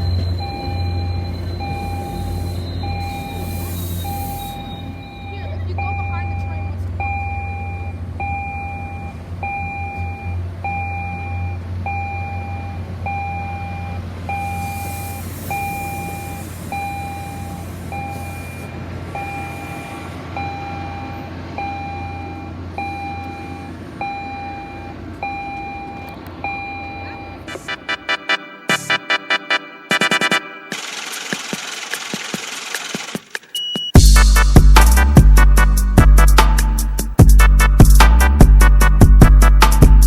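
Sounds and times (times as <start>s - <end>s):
low engine hum: 0.0s - 27.5s
electronic warning beeps: 0.0s - 30.4s, 33.4s - 34.0s.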